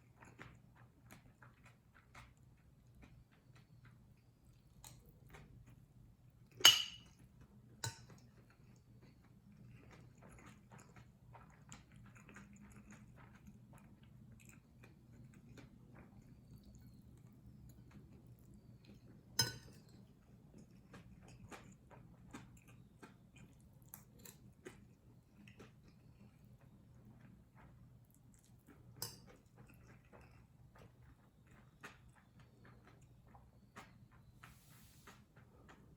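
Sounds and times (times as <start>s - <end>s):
chewing and mouth clicks: 0.0s - 6.6s, 7.2s - 35.9s
faint low hum: 0.0s - 35.9s
sharp clink: 6.6s - 7.1s.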